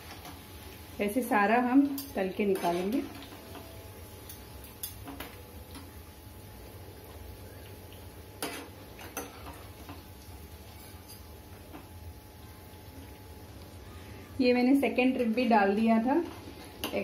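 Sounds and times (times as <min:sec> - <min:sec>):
food frying in hot oil: 0:00.0 - 0:17.0
metal spatulas clinking on pan: 0:01.8 - 0:03.6.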